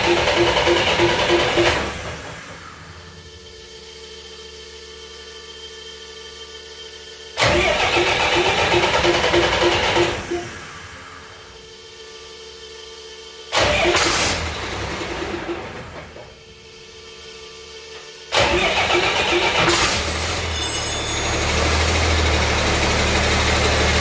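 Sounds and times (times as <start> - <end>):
diesel engine idling: 0.0 - 3.6, 18.4 - 24.0
starter cranking diesel engine: 0.0 - 3.7, 7.4 - 11.9, 13.5 - 17.1, 18.3 - 24.0.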